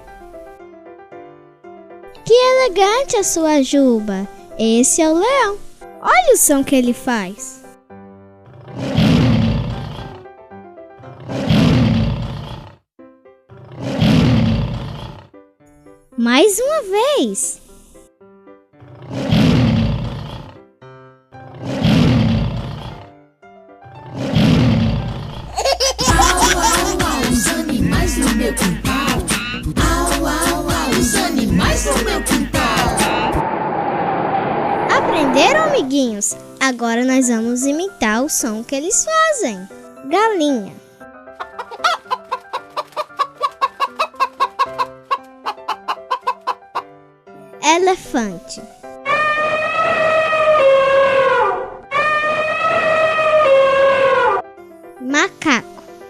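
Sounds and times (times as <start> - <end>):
lion roaring: 8.4 - 10.2, 11.0 - 12.8, 13.5 - 15.3, 18.8 - 20.6, 21.4 - 23.1, 24.0 - 25.4, 49.1 - 54.4
hen clucking: 41.4 - 46.6
hen squawk: 41.4 - 46.6, 49.1 - 54.4.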